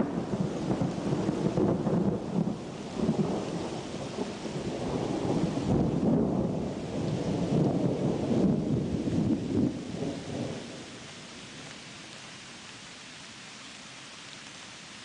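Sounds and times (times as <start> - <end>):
thunder rumbling: 0.0 - 11.1
steady rain: 0.0 - 15.0.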